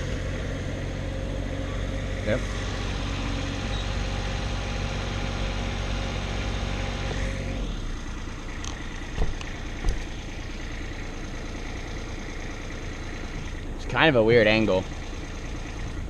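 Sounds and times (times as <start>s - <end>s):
engine idling: 0.0s - 16.0s
sharp knocks: 9.2s - 10.1s.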